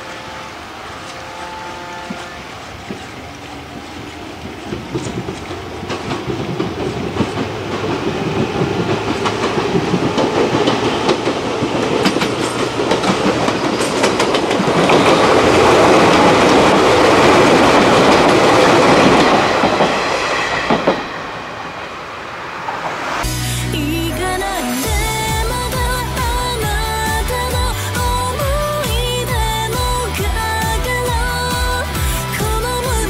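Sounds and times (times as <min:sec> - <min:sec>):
electric train passing: 0:00.0 - 0:33.0
wheels clicking over rail joints: 0:01.0 - 0:20.0
music: 0:23.2 - 0:33.0.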